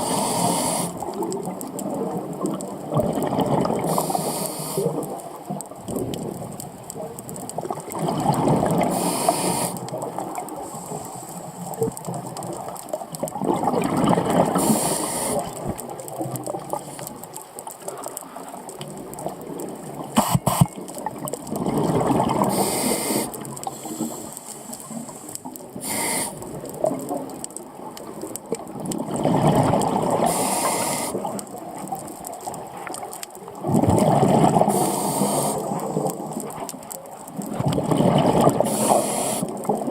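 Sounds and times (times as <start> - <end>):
steady underwater hiss: 0.0 - 27.0, 29.7 - 39.9
exhaust bubbles bursting: 2.1 - 3.9, 7.6 - 8.9, 13.2 - 14.7, 20.7 - 22.5, 28.9 - 30.3, 33.6 - 34.8, 37.5 - 38.7.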